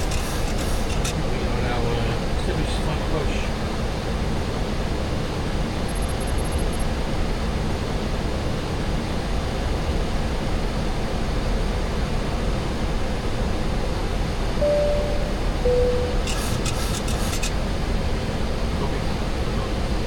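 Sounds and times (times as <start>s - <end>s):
cockpit airflow and engine noise: 0.0s - 20.0s
single steady tone: 14.6s - 16.8s.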